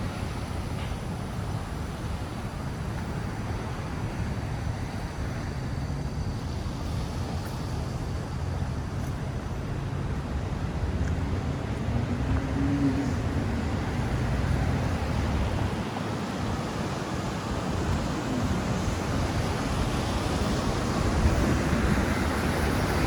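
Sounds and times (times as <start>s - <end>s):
street traffic rumble: 0.0s - 23.0s.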